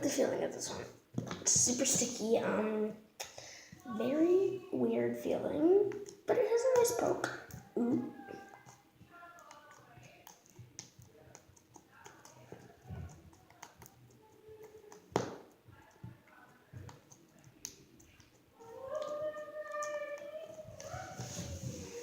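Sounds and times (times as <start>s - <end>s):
slime squishing with wet clicks: 5.8s - 20.6s.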